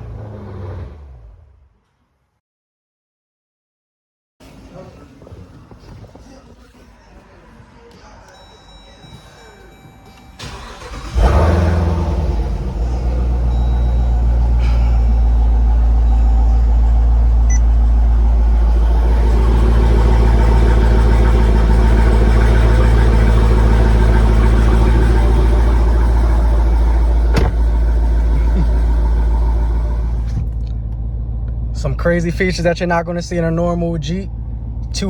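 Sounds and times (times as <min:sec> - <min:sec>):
car engine idling: 0:10.4 - 0:35.0.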